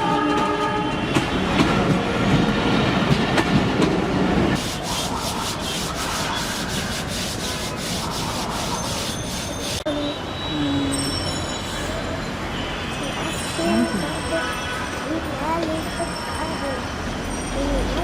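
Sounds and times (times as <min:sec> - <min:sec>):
train horn: 0:00.0 - 0:01.3.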